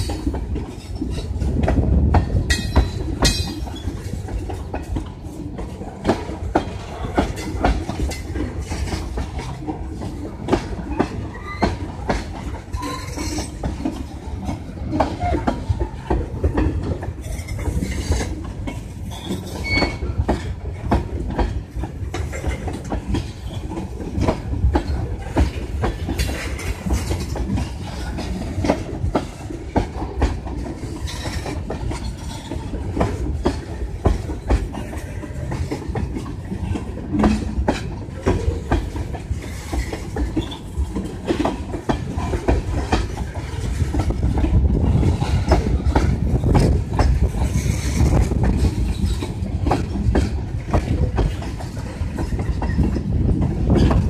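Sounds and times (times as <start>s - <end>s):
freight train wheels rumbling: 0.0s - 54.0s
wheels knocking over rail joints: 0.0s - 54.0s.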